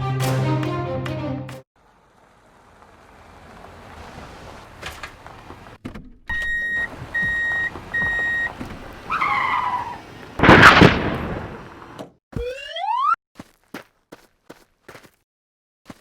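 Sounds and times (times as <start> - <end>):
electronic beeps: 6.3 - 8.5, 12.4 - 13.2.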